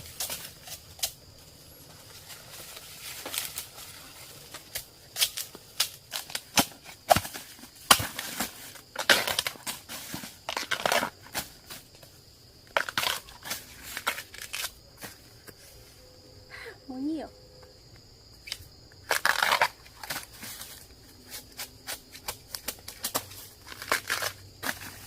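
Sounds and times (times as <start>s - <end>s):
crunching and crackling: 0.0s - 12.0s, 12.7s - 15.6s, 18.4s - 25.0s.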